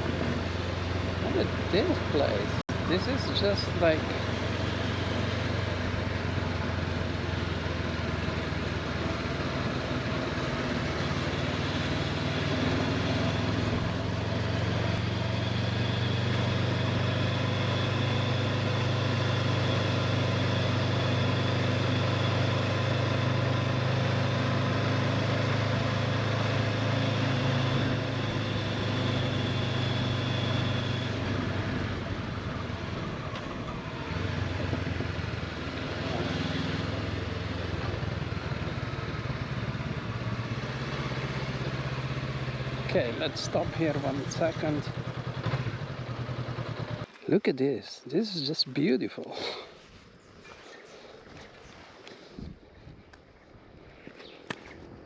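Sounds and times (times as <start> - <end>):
motorcycle engine running: 0.0 - 47.2
road noise: 0.0 - 55.0
wind noise: 51.3 - 55.0.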